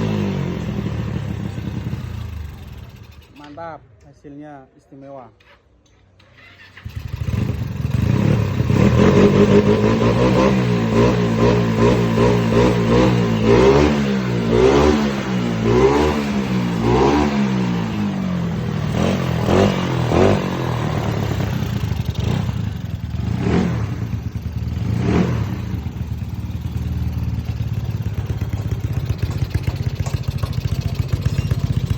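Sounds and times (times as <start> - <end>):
scooter engine revving: 0.0 - 3.4, 6.2 - 31.9
scooter engine idling: 0.0 - 3.5, 15.2 - 31.9.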